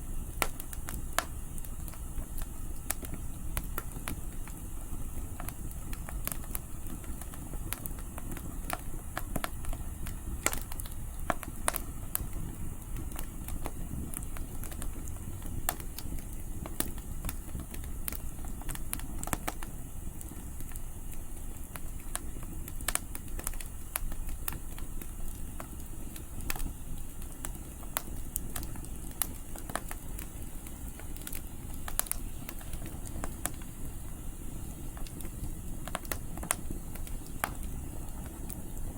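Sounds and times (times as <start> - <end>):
campfire crackling and popping: 0.0 - 38.9
low rumble of wind: 0.0 - 38.9.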